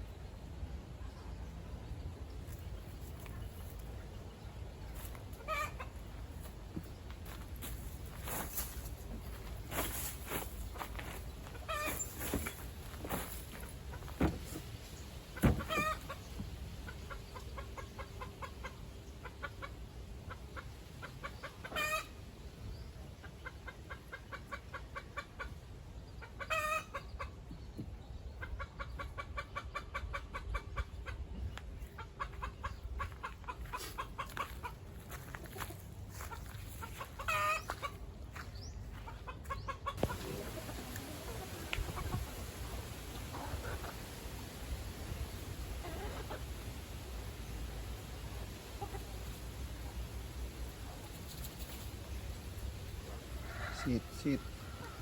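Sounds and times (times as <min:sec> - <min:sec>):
chickens clucking: 0:00.1 - 0:55.0
chicken squawks: 0:05.4 - 0:05.9, 0:11.5 - 0:12.3, 0:15.6 - 0:16.2, 0:21.0 - 0:22.2, 0:26.2 - 0:27.3, 0:36.2 - 0:38.0, 0:45.8 - 0:46.4.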